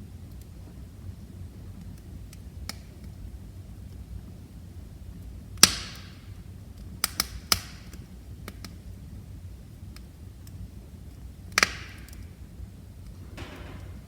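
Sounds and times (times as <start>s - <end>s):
wood fire crackling: 0.0s - 14.0s
loud pop from fire: 13.2s - 14.0s.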